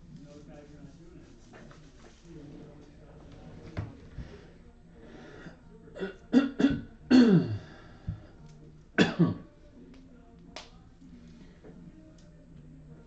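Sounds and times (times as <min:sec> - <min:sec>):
person making throat sounds: 0:06.0 - 0:07.7.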